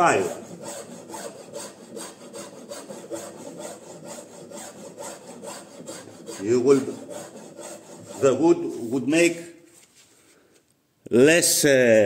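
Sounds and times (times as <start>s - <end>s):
hand file scraping wood: 0.0s - 9.4s.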